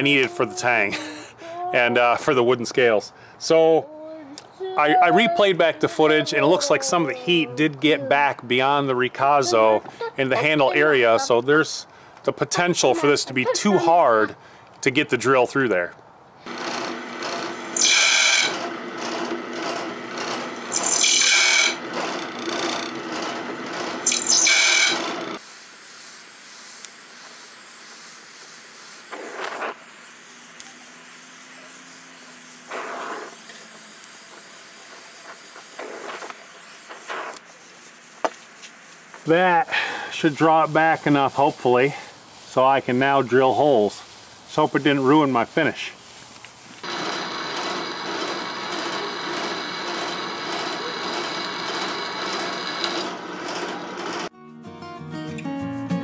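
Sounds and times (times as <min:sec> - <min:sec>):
drill press grinding into steel: 0:16.5 - 0:25.4, 0:46.8 - 0:54.3
torch flame hissing: 0:25.4 - 0:40.5.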